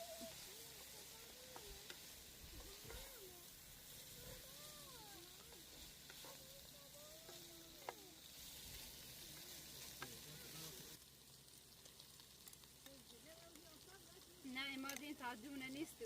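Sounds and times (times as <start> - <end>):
faint distant voices: 0.0 - 11.0
food sizzling in a pan: 0.0 - 16.0.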